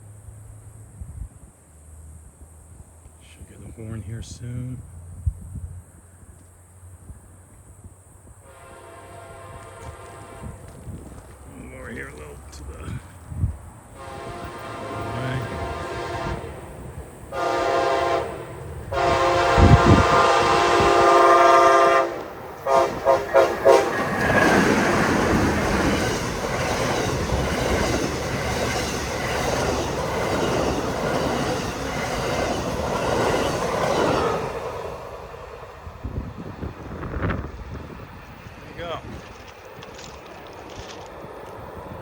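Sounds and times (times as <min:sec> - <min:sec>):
train wheel and rail rush: 0:00.0 - 0:42.0
train horn blasts: 0:08.4 - 0:10.8, 0:13.9 - 0:24.4.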